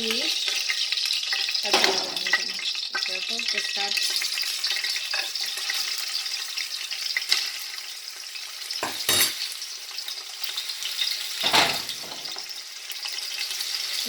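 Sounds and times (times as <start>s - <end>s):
meat sizzling in hot oil: 0.0s - 14.0s
knocks on a pot: 11.4s - 12.4s.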